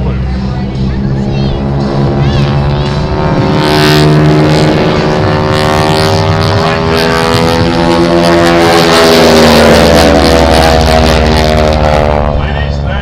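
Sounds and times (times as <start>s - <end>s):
propeller planes droning: 0.0s - 13.0s.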